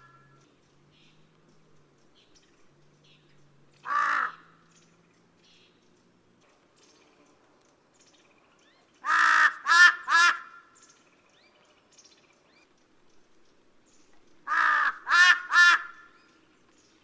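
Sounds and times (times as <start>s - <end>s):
crow cawing: 3.8s - 4.6s, 9.0s - 10.7s, 14.5s - 16.2s.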